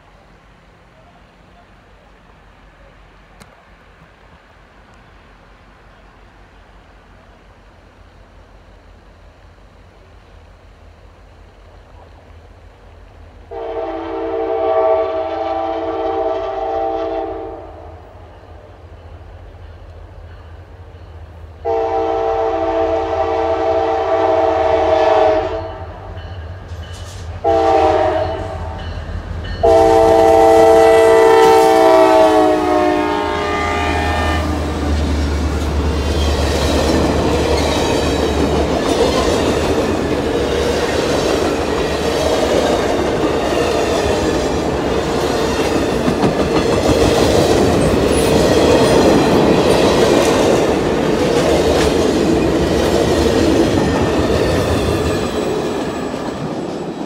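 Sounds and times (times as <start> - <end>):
heavy low rumble of locomotives: 0.0 - 57.0
locomotive air horn blasts: 13.5 - 18.1, 21.6 - 26.1, 27.4 - 29.0, 29.6 - 34.8
train wheels clicking over rail joints: 26.1 - 27.5, 34.6 - 57.0.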